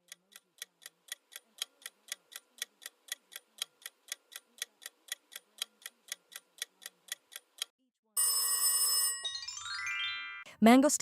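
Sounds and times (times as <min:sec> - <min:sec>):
clock ticking: 0:00.0 - 0:07.7.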